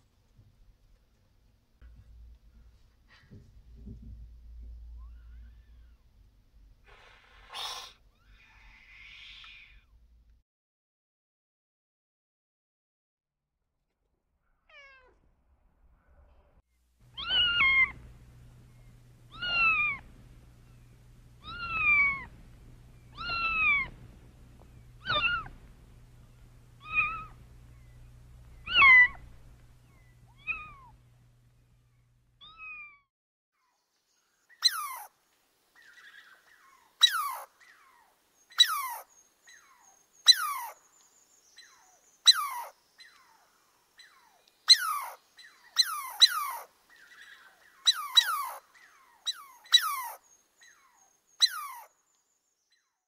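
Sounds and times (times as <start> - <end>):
low steady hum: 0.0 - 10.4, 15.2 - 32.9
squirrel chirping: 17.1 - 18.1, 18.7 - 24.0, 24.6 - 25.6, 26.8 - 30.9, 34.5 - 35.1, 35.8 - 51.9
cat meowing: 17.2 - 18.0, 19.3 - 20.0, 21.4 - 22.3, 23.2 - 23.9, 25.0 - 25.6, 26.8 - 27.4, 28.6 - 29.2, 30.3 - 30.9.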